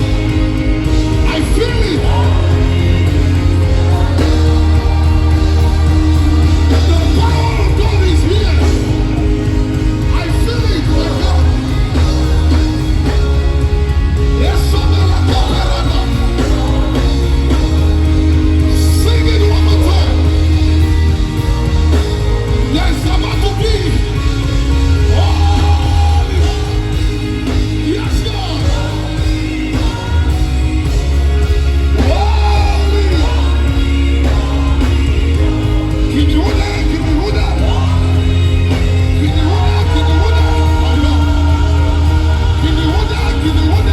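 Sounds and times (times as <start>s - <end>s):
band playing: 0.0s - 43.9s
keyboard chords: 0.0s - 43.9s
voices singing: 0.0s - 43.9s.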